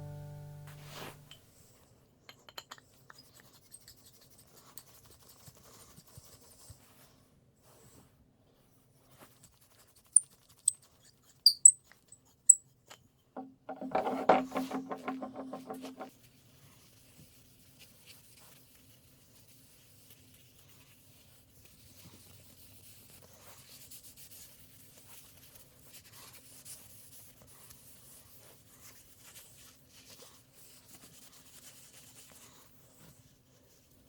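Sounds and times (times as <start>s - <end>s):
rubbing and scraping: 13.5s - 16.2s.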